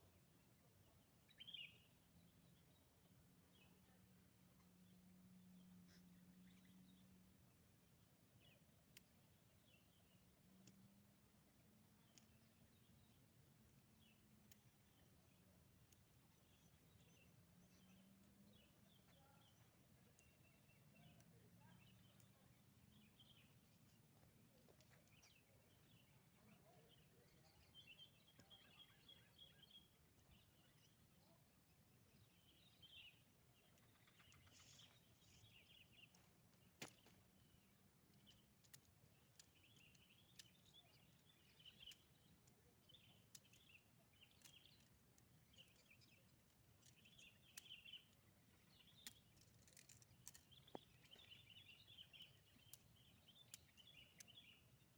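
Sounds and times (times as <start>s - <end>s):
soft clicks: 10.5s - 11.0s, 14.4s - 20.6s, 38.1s - 48.2s, 48.8s - 54.5s.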